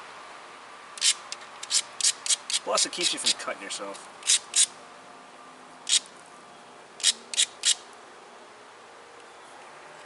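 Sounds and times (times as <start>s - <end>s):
stone scraping flint edge: 1.0s - 2.7s, 7.0s - 7.8s.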